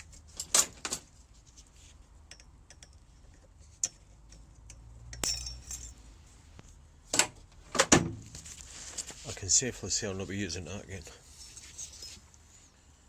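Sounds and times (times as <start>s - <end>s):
metal parts clicking and tapping: 2.2s - 6.0s.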